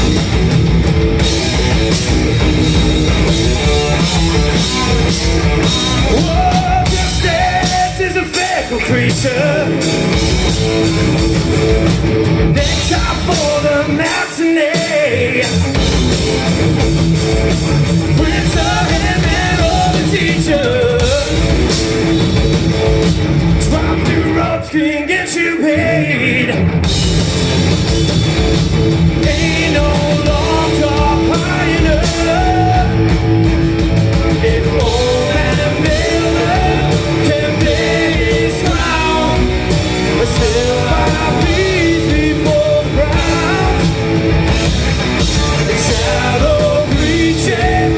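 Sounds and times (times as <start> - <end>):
live rock band playing: 0.0 - 47.9
person singing lead vocal: 4.6 - 10.0, 12.6 - 15.9, 18.0 - 21.7, 23.5 - 26.8, 29.2 - 33.3, 34.3 - 44.2, 45.2 - 47.9.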